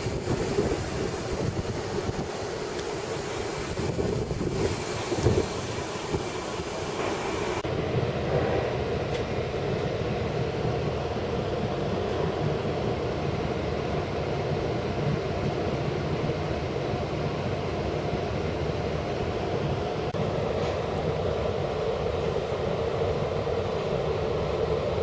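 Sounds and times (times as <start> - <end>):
wind buffeting microphone: 0.0 - 13.0
train running heard from aboard: 0.0 - 25.0.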